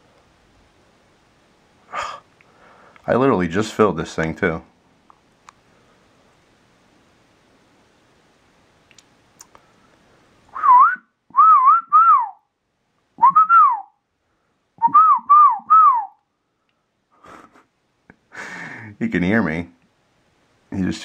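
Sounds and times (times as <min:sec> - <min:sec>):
person whistling: 0:10.5 - 0:12.4, 0:13.2 - 0:13.9, 0:14.8 - 0:16.2.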